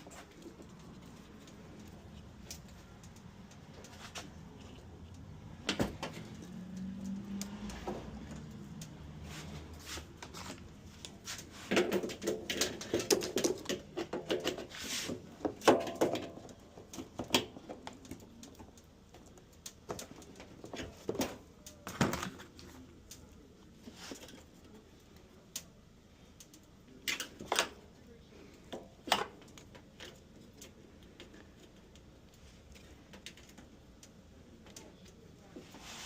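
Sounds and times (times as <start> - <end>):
objects knocking and clattering: 11.5 - 22.6.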